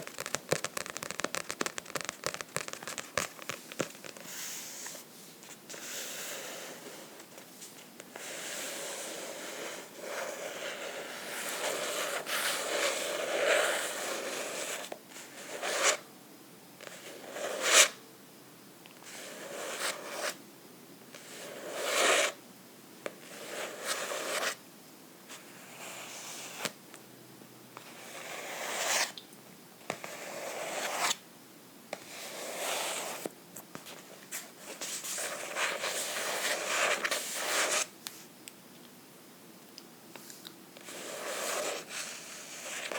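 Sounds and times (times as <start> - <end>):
scratching and rubbing on a book: 0.0 - 16.1, 16.8 - 18.0, 19.0 - 20.4, 21.1 - 22.4, 23.2 - 24.6, 25.3 - 26.8, 27.8 - 29.2, 29.9 - 31.2, 31.9 - 37.9, 40.8 - 42.9.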